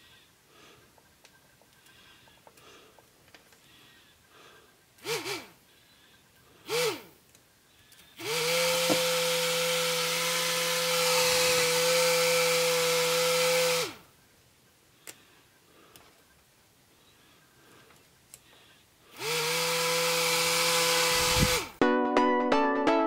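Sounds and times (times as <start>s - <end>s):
small motor propeller whine: 5.0s - 5.6s, 6.6s - 7.1s, 8.2s - 14.0s, 19.1s - 21.8s.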